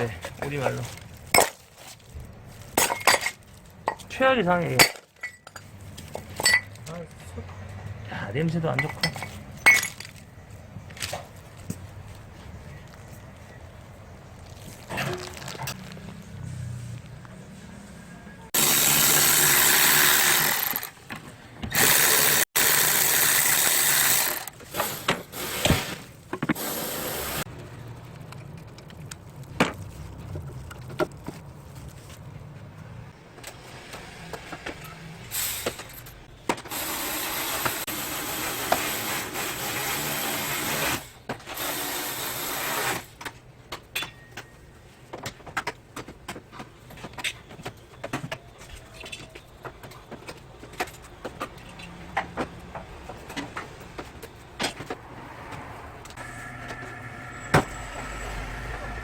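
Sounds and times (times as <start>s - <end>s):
power tool bursts: 18.6s - 21.0s, 21.7s - 25.9s, 36.7s - 43.1s.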